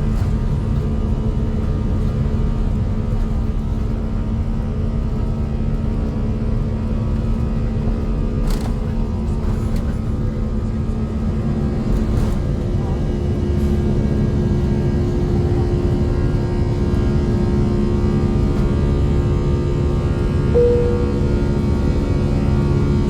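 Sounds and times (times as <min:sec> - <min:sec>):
jet engine cabin rumble: 0:00.0 - 0:23.0
higher hum: 0:20.3 - 0:23.0
short higher tone: 0:20.5 - 0:22.4.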